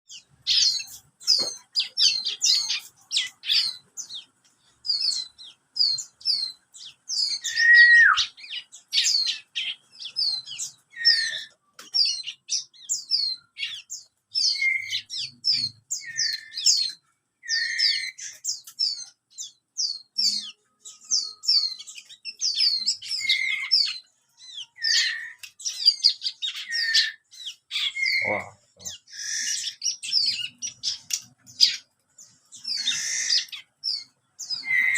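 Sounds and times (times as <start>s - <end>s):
bird chirping rapidly: 0.1s - 34.9s.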